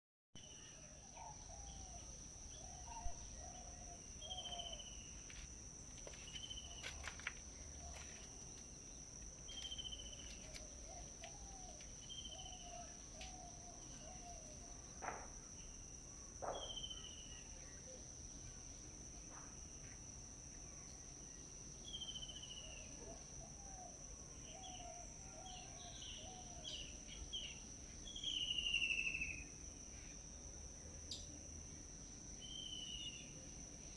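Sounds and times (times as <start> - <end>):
songbirds chirping: 0.4 - 18.7.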